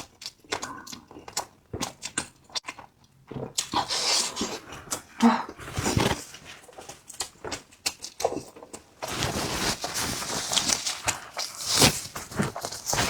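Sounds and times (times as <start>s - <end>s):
wet chewing smacks: 0.0s - 9.0s
loud slurping: 3.6s - 6.4s.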